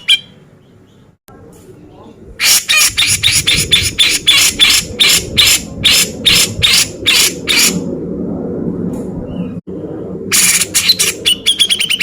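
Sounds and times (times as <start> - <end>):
low background hum: 0.0 - 12.0
bird giving rasping calls: 2.4 - 7.8.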